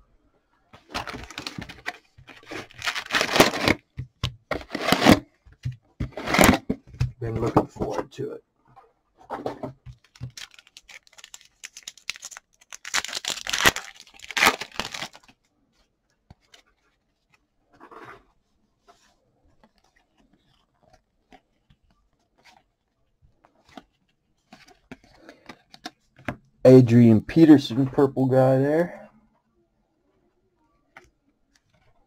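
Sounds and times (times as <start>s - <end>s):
packaging ripping: 0.9s - 3.8s, 4.5s - 5.2s, 10.0s - 15.3s.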